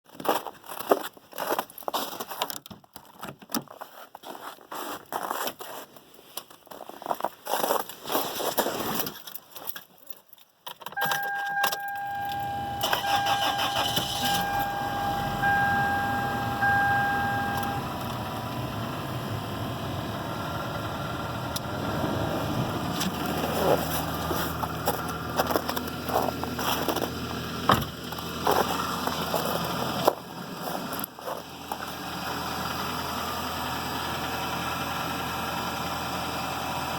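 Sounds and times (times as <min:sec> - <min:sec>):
car starter cranking: 0:10.9 - 0:32.7
two-tone dashboard warning chime: 0:11.0 - 0:19.8
car engine idling: 0:11.0 - 0:36.9.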